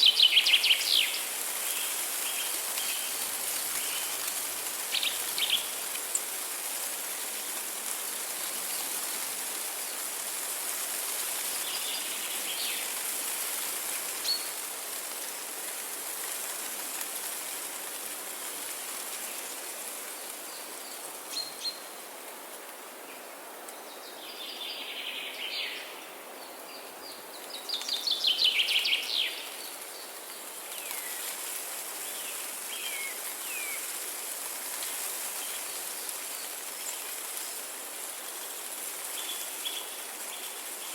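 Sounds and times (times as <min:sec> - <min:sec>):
steady outdoor hiss: 0:00.0 - 0:40.9.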